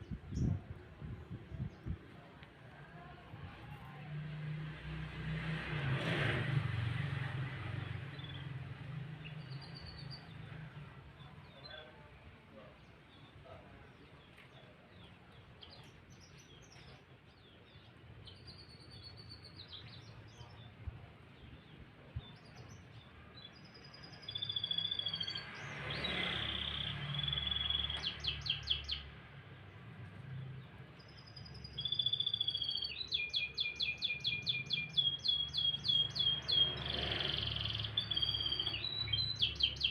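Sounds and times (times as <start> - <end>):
canary singing: 23.7 - 25.5, 26.3 - 29.1, 31.0 - 39.9.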